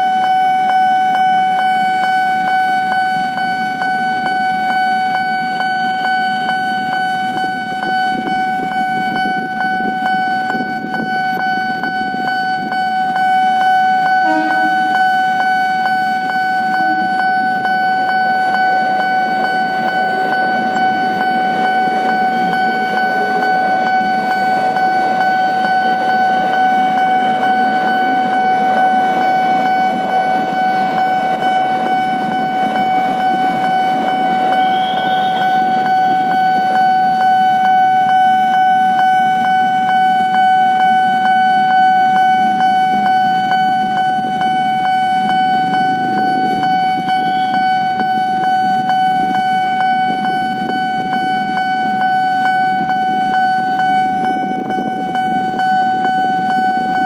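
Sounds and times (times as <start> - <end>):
crossing warning signal tone: 0.0 - 57.0
electric train rumbling past: 0.0 - 57.0
train horn toot: 13.9 - 37.2, 45.9 - 49.3.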